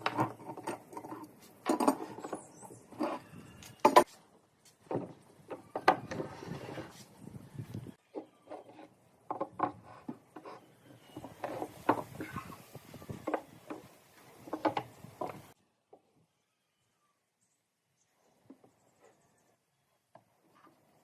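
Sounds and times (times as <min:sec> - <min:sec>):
wooden pieces knocking and tapping: 0:09.3 - 0:12.4, 0:13.1 - 0:15.5.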